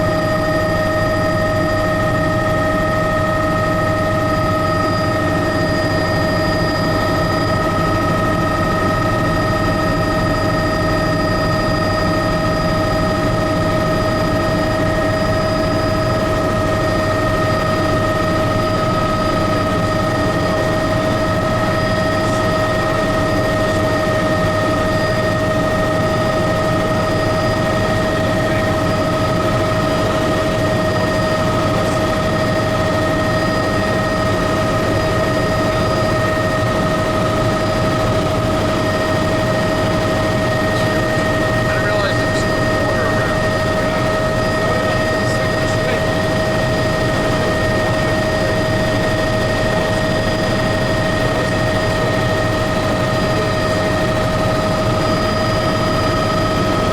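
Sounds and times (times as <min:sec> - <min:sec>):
helicopter rotor noise: 0:00.0 - 0:56.9
helicopter turbine whine: 0:00.0 - 0:56.9.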